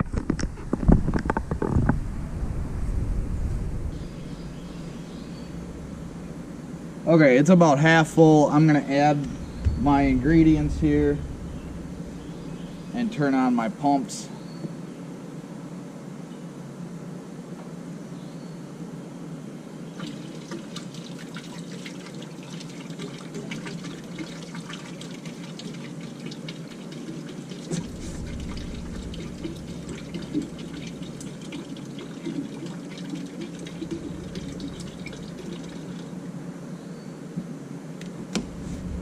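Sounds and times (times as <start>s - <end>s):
low rumble: 0.0s - 13.8s, 27.7s - 32.0s, 33.7s - 36.2s, 38.2s - 39.0s
pump hum: 2.0s - 13.6s, 19.9s - 36.4s, 38.2s - 39.0s
water pouring and splashing: 19.9s - 36.2s.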